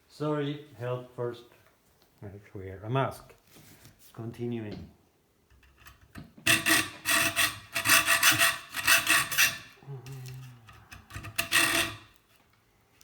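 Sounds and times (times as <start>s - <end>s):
hand tool rasping metal tube: 5.7s - 9.8s, 10.6s - 12.2s.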